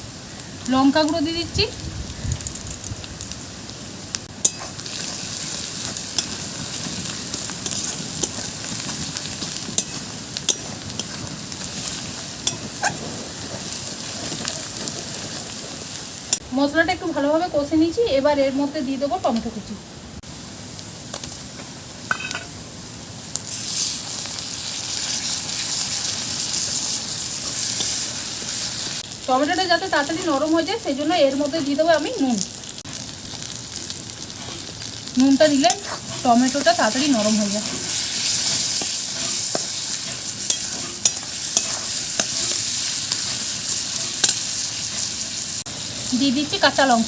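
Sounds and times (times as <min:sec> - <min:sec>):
paste sizzling in hot oil: 0:00.0 - 0:16.4, 0:20.2 - 0:47.0
tomatoes sizzling in pan: 0:00.0 - 0:47.0
spatula clinking against pan: 0:40.5 - 0:42.4.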